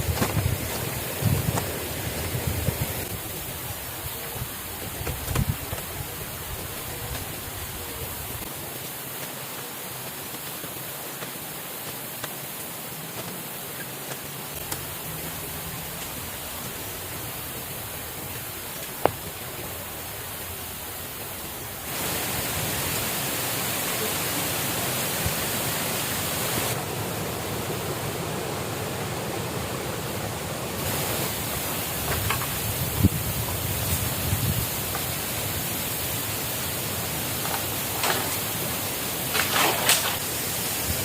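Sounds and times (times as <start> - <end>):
water rushing: 0.0 - 41.0.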